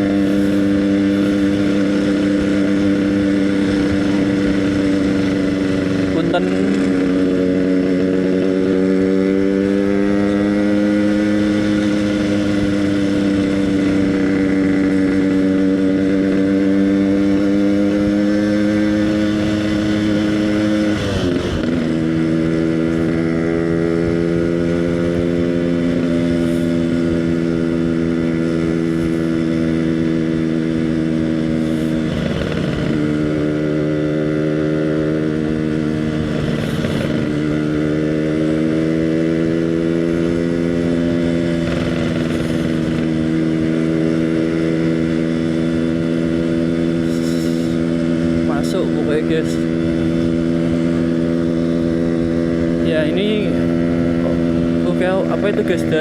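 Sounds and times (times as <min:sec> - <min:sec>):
two-stroke motorcycle engine cruising: 0:00.0 - 0:56.0.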